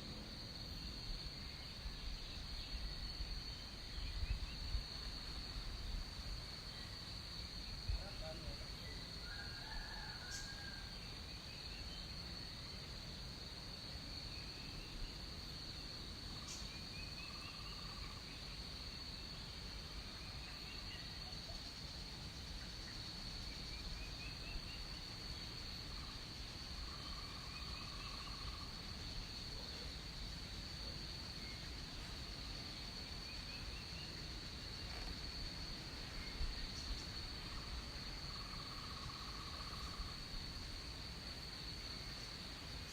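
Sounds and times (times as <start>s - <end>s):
high-pitched insect drone: 36.1s - 40.8s.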